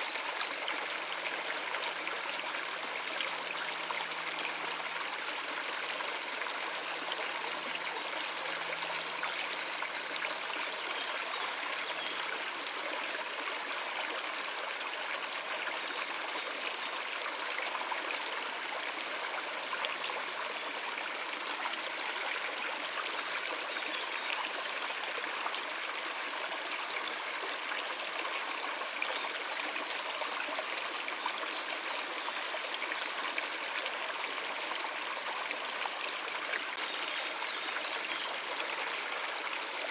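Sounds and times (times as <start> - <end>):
stream water trickling over rocks: 0.0 - 39.9.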